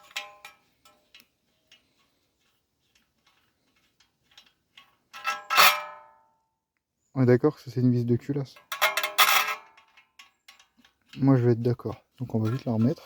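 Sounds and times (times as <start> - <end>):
ringing metal clank: 0.0 - 0.6, 8.6 - 9.9
faint metallic wrench ticks: 0.0 - 5.4.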